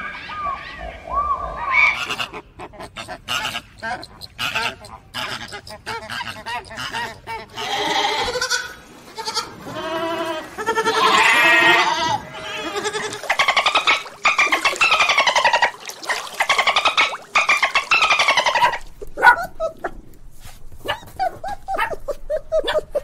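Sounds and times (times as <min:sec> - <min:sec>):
high-pitched animal calls: 0:00.0 - 0:08.6, 0:10.8 - 0:19.0
fast-trembling animal cries: 0:09.8 - 0:18.8.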